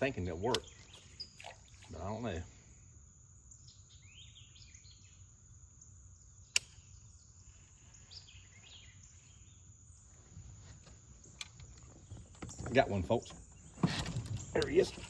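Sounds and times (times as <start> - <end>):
high insect drone: 0.0 - 11.8
birds chirping: 0.0 - 15.0
sharp click: 6.5 - 6.8.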